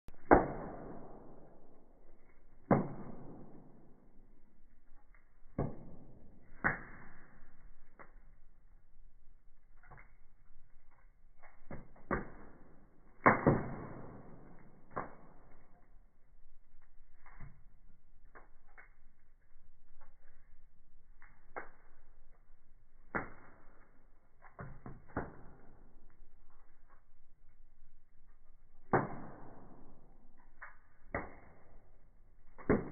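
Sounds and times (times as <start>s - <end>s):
firewood crackling and popping: 0.1s - 32.9s.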